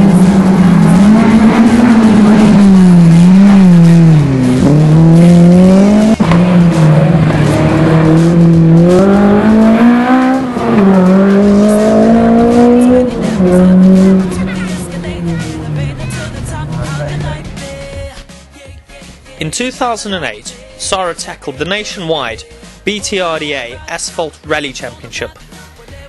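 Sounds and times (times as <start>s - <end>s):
rally car engine revving: 0.0s - 17.8s.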